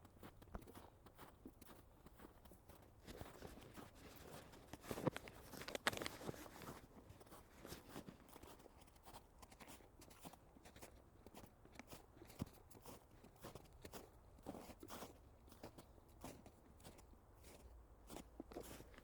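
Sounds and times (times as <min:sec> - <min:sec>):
footsteps crunching through snow: 0:00.2 - 0:19.0
rustling: 0:03.0 - 0:08.0.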